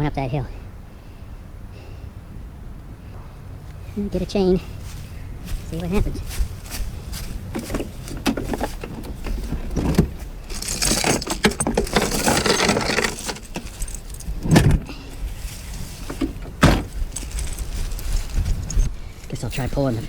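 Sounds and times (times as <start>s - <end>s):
metal chain rattling and clinking: 5.5s - 20.0s
heavy thump: 5.9s - 17.9s.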